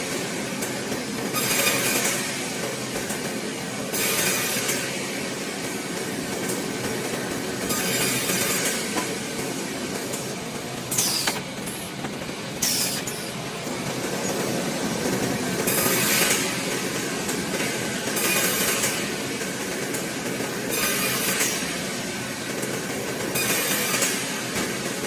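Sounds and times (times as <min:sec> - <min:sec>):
wood sawing machine rattling: 0:00.0 - 0:25.0
saw hissing through wood: 0:10.9 - 0:13.5.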